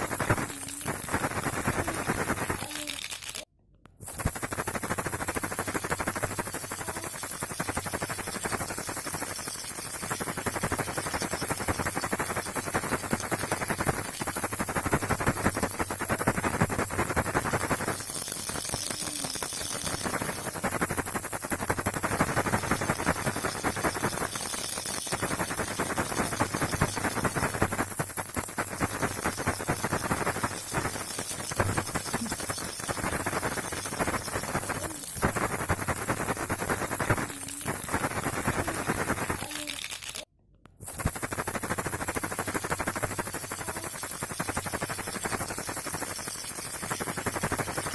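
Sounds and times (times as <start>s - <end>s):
steady high hiss: 0.0s - 3.4s, 4.0s - 40.3s, 40.9s - 47.9s
baby rattle shaken fast: 0.0s - 47.9s.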